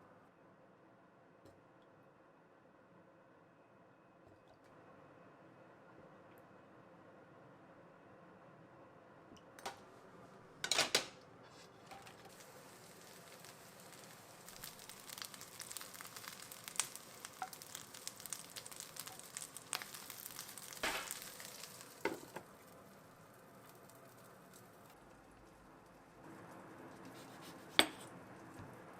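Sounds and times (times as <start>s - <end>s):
food sizzling in a frying pan: 11.9s - 28.9s.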